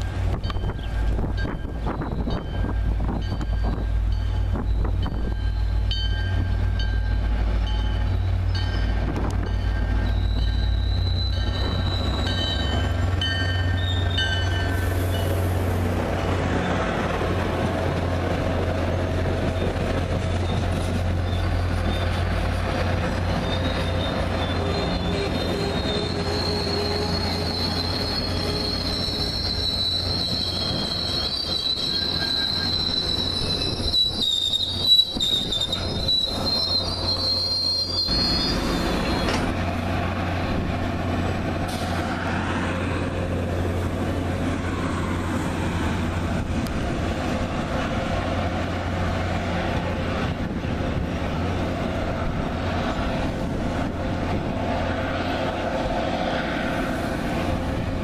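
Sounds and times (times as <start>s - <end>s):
train rolling past: 0.0s - 58.0s
wheels squealing: 0.5s - 15.6s, 16.2s - 40.3s.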